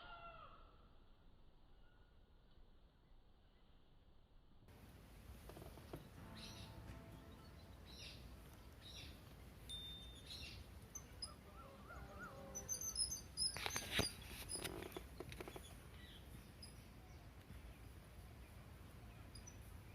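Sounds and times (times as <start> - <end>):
faint bird chirps: 1.6 - 2.4, 5.9 - 19.9
crackling and rustling: 4.7 - 7.6, 13.3 - 16.5.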